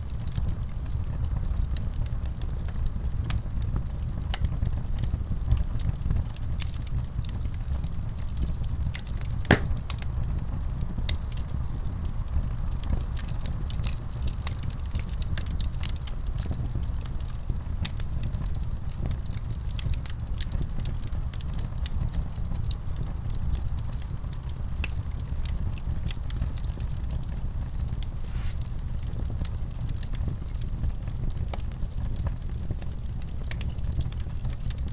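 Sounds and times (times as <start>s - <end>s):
fire crackling and popping: 0.1s - 34.9s
fire rumbling: 9.5s - 34.9s.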